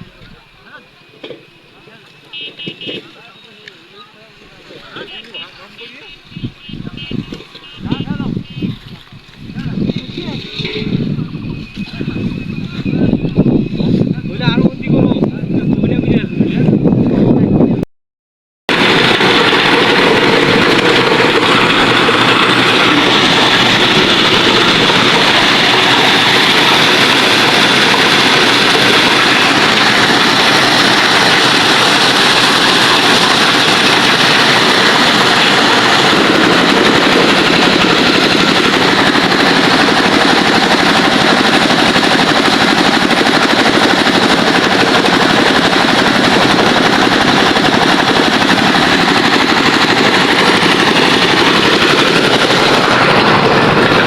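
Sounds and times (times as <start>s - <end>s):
engine-driven machine rattling: 7.0s - 14.6s, 18.7s - 54.0s.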